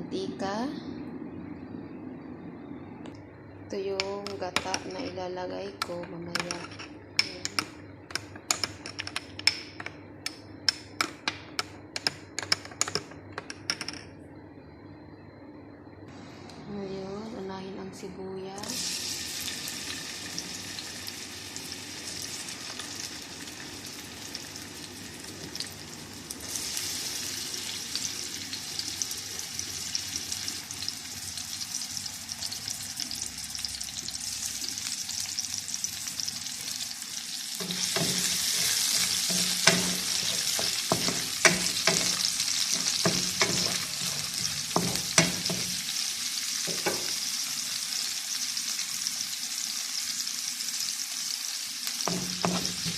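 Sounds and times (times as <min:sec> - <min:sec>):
spatula knocking and scraping pan: 0:05.8 - 0:09.9, 0:37.6 - 0:45.9, 0:46.6 - 0:47.2, 0:52.1 - 0:52.9
onion sizzling in oil: 0:18.6 - 0:52.9.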